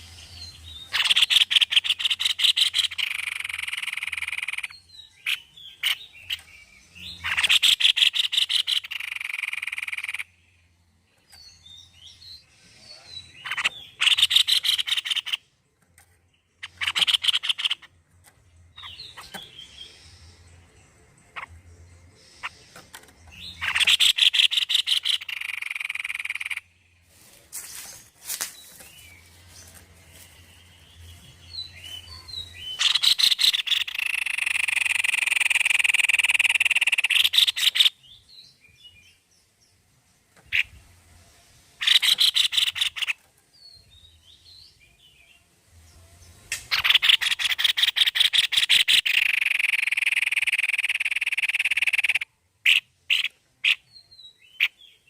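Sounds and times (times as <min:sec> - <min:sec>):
faint bird chirps: 0:00.0 - 0:39.3
bird chattering trills: 0:00.7 - 0:10.5, 0:13.1 - 0:15.5, 0:16.5 - 0:18.0, 0:18.7 - 0:20.6, 0:21.2 - 0:26.8, 0:31.5 - 0:38.0, 0:41.8 - 0:43.2, 0:46.6 - 0:55.0.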